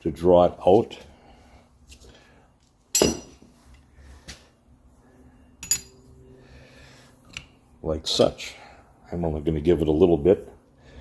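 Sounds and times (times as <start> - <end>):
metal tool clinking: 2.9 - 3.5, 5.6 - 6.1.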